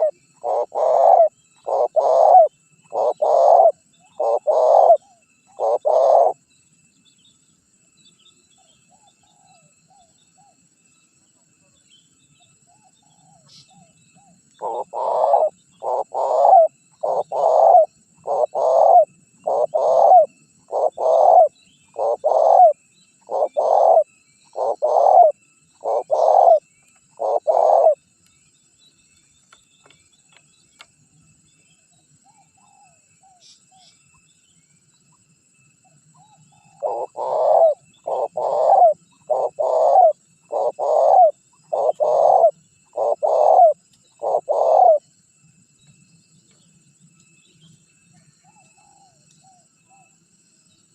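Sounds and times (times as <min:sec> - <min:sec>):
dove cooing: 0:00.0 - 0:06.4, 0:12.8 - 0:28.0, 0:36.2 - 0:45.1.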